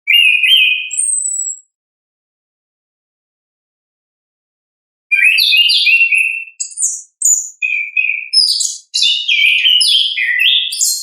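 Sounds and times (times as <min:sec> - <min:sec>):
thrush singing whistled phrases: 0:00.1 - 0:01.8, 0:05.1 - 0:11.0.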